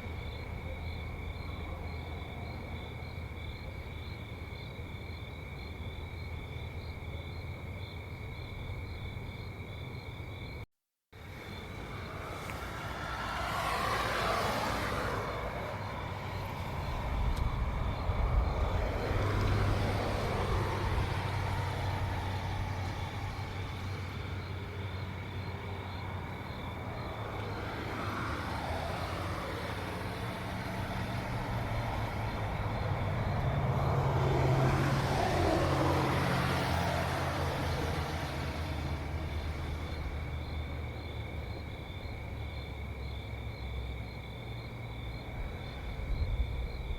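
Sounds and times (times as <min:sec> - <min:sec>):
insects chirping: 0:00.0 - 0:10.6, 0:11.2 - 0:46.9
cars driving past: 0:11.2 - 0:46.9
low engine hum: 0:11.3 - 0:46.9.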